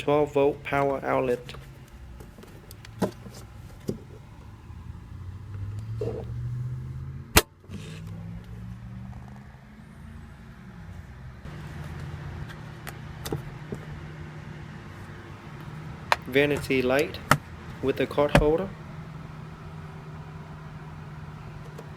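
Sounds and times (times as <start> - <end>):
car engine idling: 0.0 - 7.2, 14.8 - 21.9.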